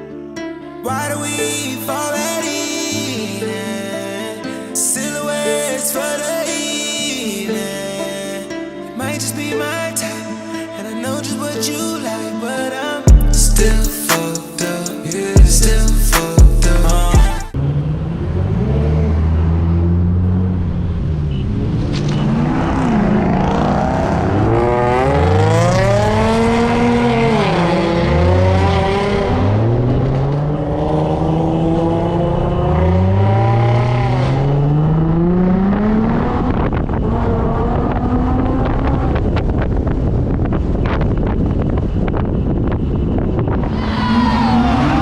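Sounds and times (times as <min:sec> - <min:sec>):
sports car engine revving: 0:15.4 - 0:39.6.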